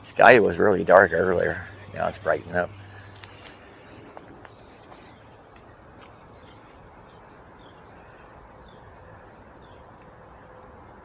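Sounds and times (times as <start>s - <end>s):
insects: 0.0s - 11.0s
high bird chirps: 0.6s - 11.0s.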